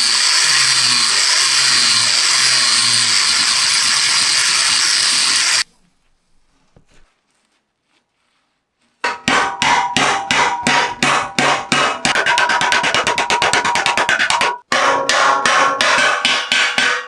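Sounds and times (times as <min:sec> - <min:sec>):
hammer striking metal: 0:09.1 - 0:17.0.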